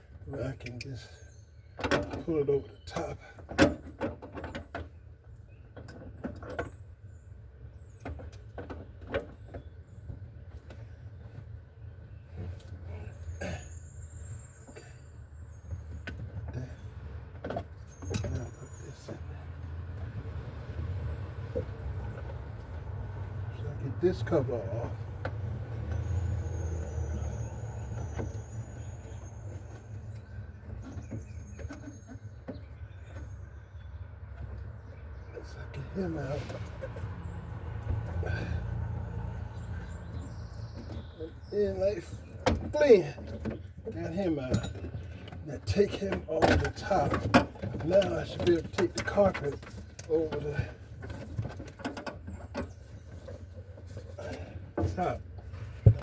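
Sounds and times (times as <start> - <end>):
car trim panels knocking and scraping: 44.5 - 56.0.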